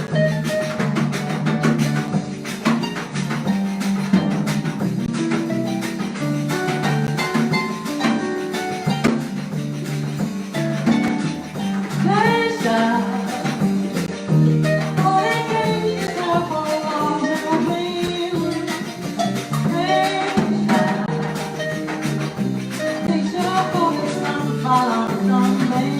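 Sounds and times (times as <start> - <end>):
harp: 0.0 - 25.3
bass line: 0.0 - 25.9
percussion: 0.0 - 25.9
person singing: 11.7 - 22.1, 22.7 - 25.9.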